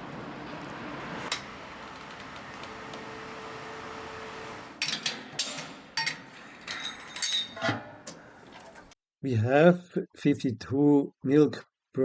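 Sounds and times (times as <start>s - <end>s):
sharp metallic clanks: 4.8s - 8.2s.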